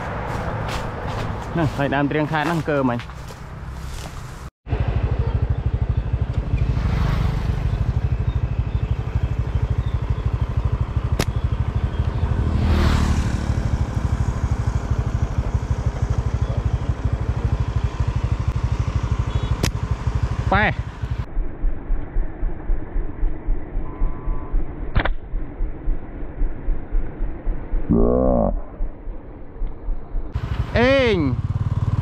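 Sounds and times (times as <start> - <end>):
engine running with fast pulse: 4.7 - 32.0
sharp click: 11.1 - 11.4, 24.9 - 25.3.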